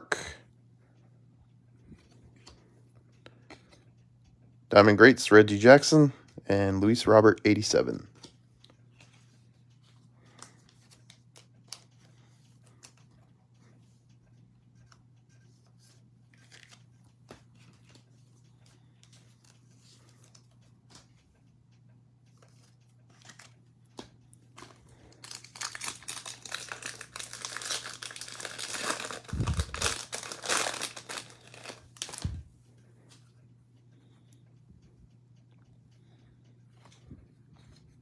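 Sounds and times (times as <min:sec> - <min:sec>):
cards clicking: 0:22.6 - 0:32.4
foil wrapper tearing and crinkling: 0:24.6 - 0:32.4.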